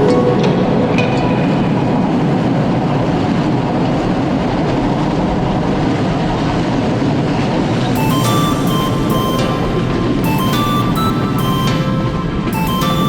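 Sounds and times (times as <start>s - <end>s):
music: 8.0s - 13.0s.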